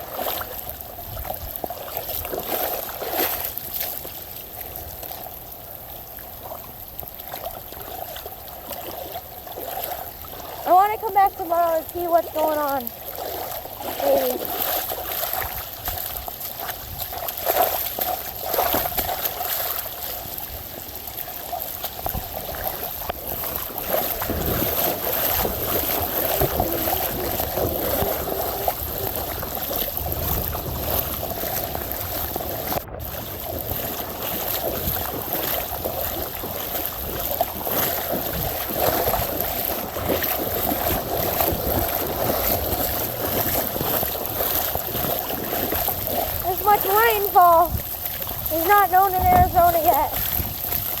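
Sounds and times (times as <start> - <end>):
floodwater rushing and trickling: 0.0 - 51.0.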